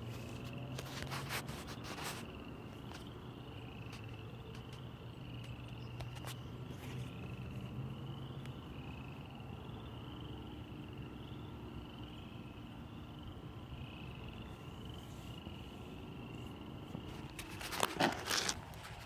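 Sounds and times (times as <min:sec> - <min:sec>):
frogs trilling: 0:00.1 - 0:19.0.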